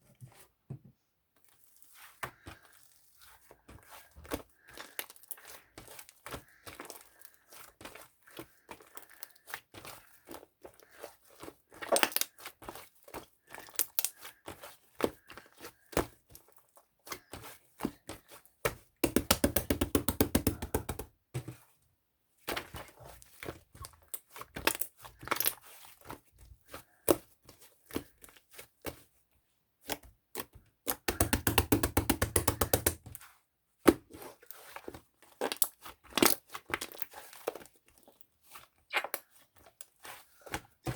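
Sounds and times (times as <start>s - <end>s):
sharp clicks and taps: 19.0s - 21.1s, 30.9s - 33.1s.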